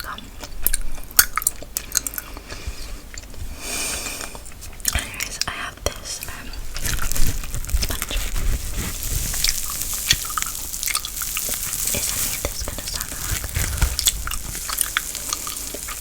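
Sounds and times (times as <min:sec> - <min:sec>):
crackly rustle against microphone: 0:06.0 - 0:16.0.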